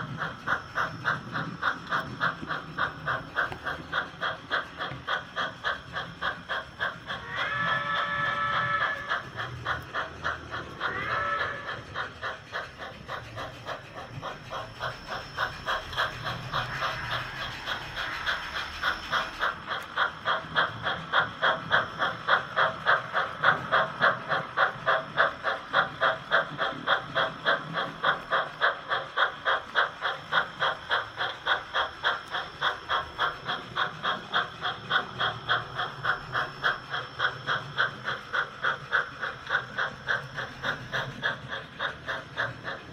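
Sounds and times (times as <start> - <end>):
model steam train chuffing: 0.0 - 42.9
train whistle toot: 7.2 - 9.2, 10.9 - 11.8.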